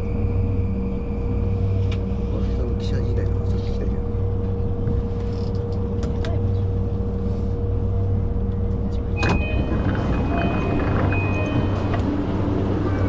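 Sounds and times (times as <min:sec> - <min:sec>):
train rumbling: 0:00.0 - 0:13.0
rattling: 0:09.2 - 0:13.0.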